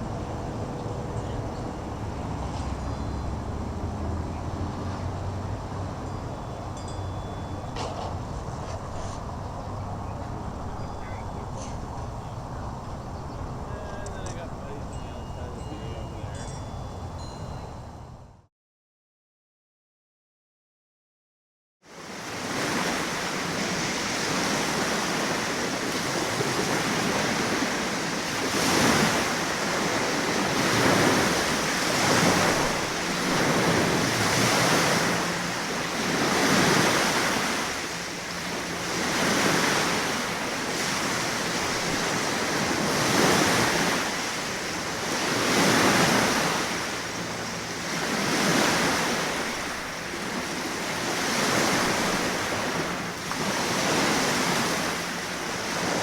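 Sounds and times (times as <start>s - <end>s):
waves rushing: 0.0s - 7.1s, 21.9s - 56.0s.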